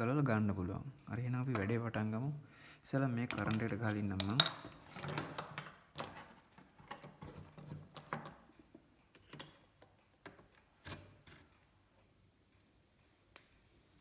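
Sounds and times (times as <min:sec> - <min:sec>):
small objects clicking and knocking: 0:03.1 - 0:11.5.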